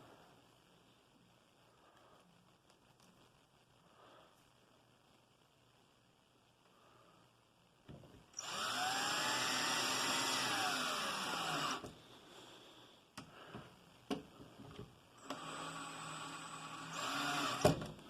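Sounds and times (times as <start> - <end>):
power drill running: 8.4 - 11.9, 15.2 - 17.9.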